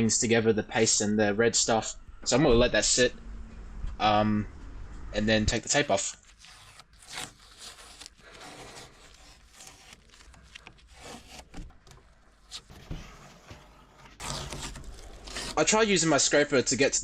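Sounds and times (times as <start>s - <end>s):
tape peeling off wood: 5.8s - 15.7s.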